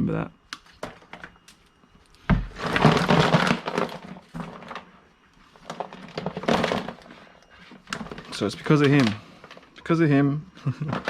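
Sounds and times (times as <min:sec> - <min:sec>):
scrap clattering and rustling: 0:02.3 - 0:09.7.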